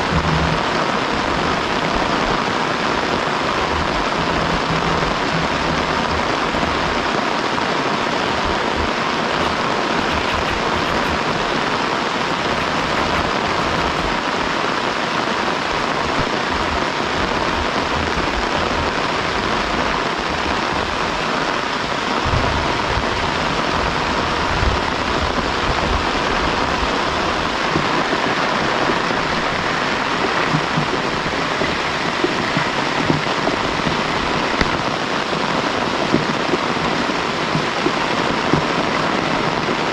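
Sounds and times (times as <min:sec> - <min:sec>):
soft low knocks: 0:00.0 - 0:00.7, 0:03.6 - 0:07.1
heavy rain falling: 0:00.0 - 0:39.9.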